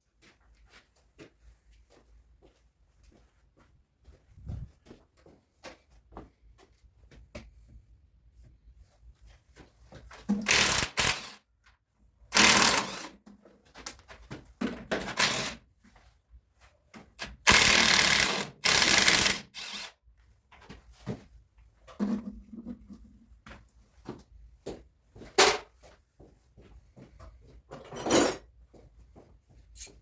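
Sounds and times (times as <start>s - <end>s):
power tool bursts: 10.4s - 11.4s, 12.3s - 13.2s, 15.0s - 15.6s, 17.5s - 20.0s.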